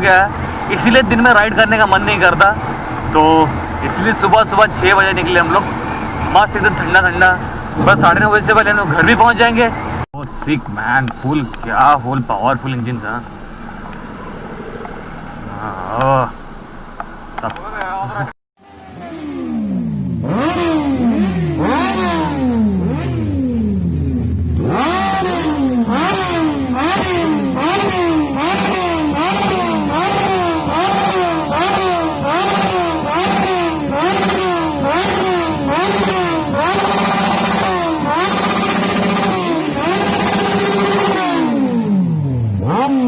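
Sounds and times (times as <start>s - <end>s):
motorcycle engine revving: 13.4s - 17.6s, 18.6s - 43.0s.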